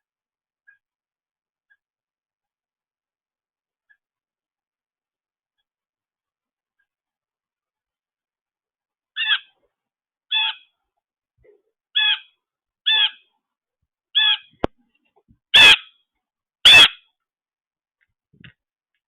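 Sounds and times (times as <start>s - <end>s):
bird calling: 9.2s - 9.6s, 10.3s - 10.7s, 12.0s - 13.3s, 14.2s - 14.6s, 15.6s - 15.9s.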